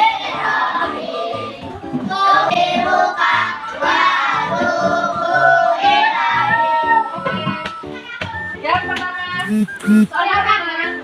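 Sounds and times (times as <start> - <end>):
children singing: 0.0 - 6.9.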